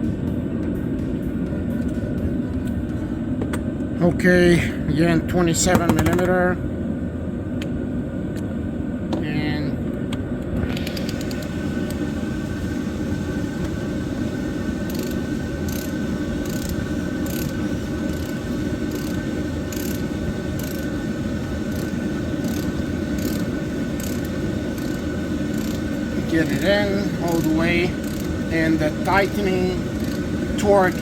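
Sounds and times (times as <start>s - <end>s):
steady mechanical drone: 0.0s - 31.0s
socket ratchet clicking: 14.9s - 20.0s, 20.6s - 20.9s, 21.7s - 25.8s, 28.0s - 28.4s, 30.0s - 30.2s.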